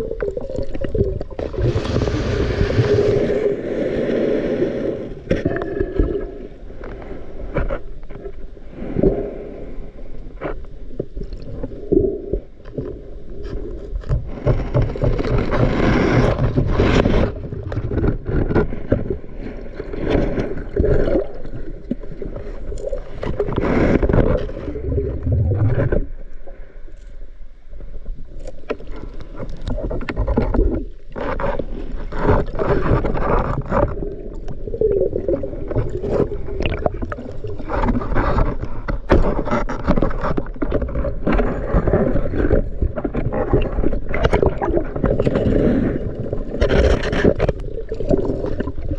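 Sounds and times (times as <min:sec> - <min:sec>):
water sloshing and gurgling: 0:00.0 - 0:48.9
knocks and scrapes: 0:05.2 - 0:08.4, 0:12.7 - 0:26.2, 0:28.4 - 0:48.9.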